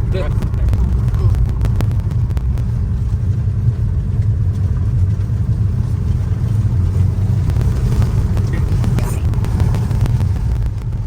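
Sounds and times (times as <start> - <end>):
car interior rumble: 0.0 - 11.0.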